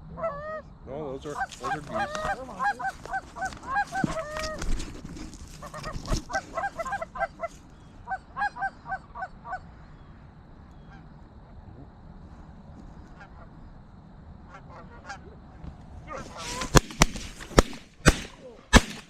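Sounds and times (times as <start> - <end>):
geese honking: 1.3 - 4.6, 5.5 - 10.1, 14.5 - 15.3.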